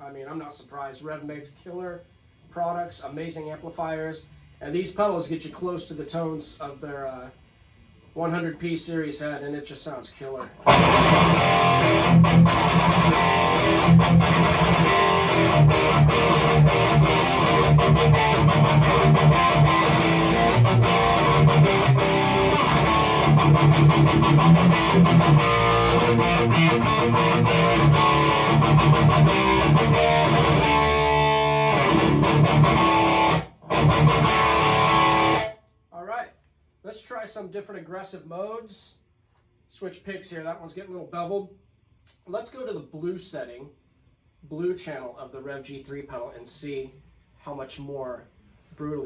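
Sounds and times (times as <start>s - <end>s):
distorted electric guitar riffs: 10.6s - 35.6s.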